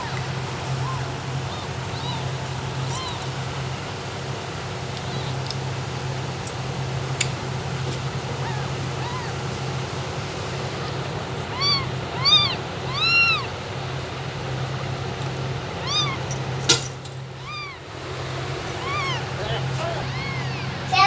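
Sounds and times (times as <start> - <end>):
kitten meowing: 0.0 - 3.4, 5.0 - 5.5, 8.4 - 9.5, 11.4 - 13.6, 15.8 - 16.4, 17.2 - 21.0.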